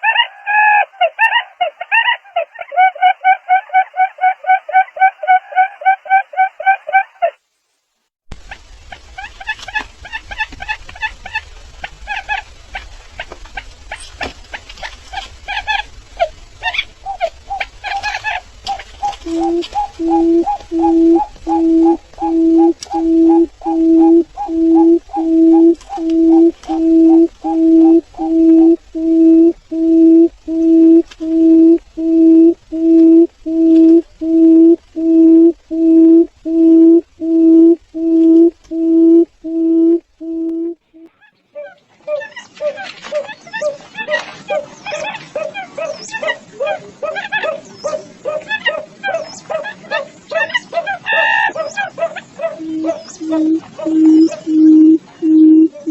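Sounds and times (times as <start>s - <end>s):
low hum: 8.3s - 41.1s, 52.6s - 55.9s
bird calling short pitched notes: 13.9s - 41.1s, 52.6s - 55.9s.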